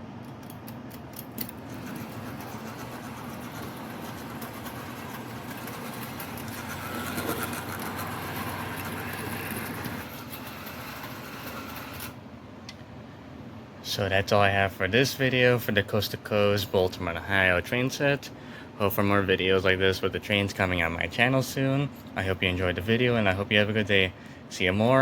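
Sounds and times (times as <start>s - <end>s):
small electric motor whirring: 1.5s - 12.2s
wheels rattling on rails: 1.6s - 12.0s.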